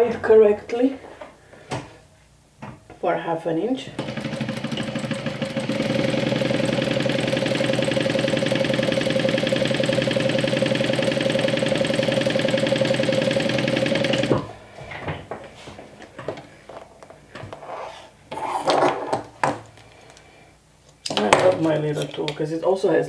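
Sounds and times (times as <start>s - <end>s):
sewing machine stitching: 3.8s - 14.6s.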